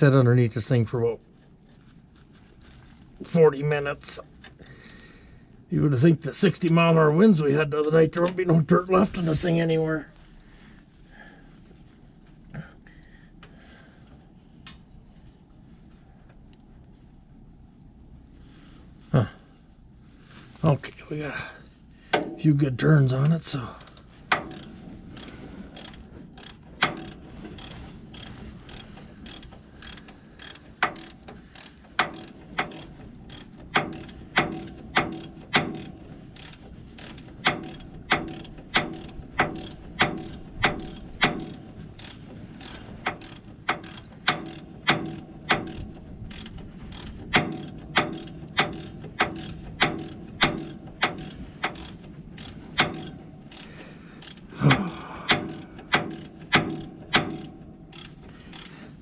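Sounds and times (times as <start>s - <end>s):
ratchet wrench clicking: 23.8s - 58.9s.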